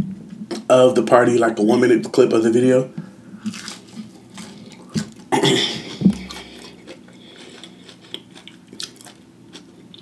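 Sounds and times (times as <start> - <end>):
chewing with wet mouth sounds: 3.4 - 10.0.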